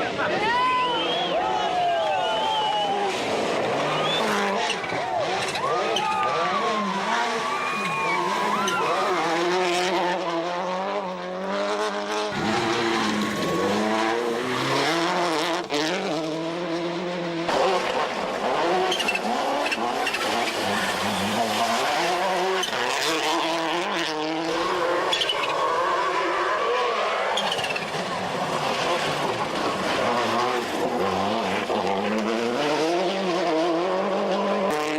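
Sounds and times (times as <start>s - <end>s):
rally car engine revving: 0.0s - 34.9s.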